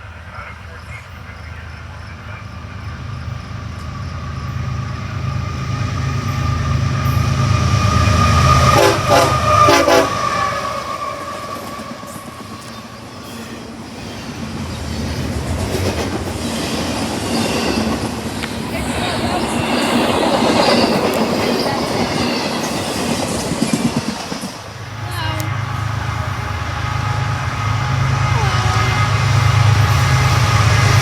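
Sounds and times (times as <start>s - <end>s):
diesel locomotive rumble: 0.0s - 31.0s
railcars clickety-clack: 0.0s - 31.0s
train air horn blasts: 6.1s - 12.8s, 25.1s - 31.0s.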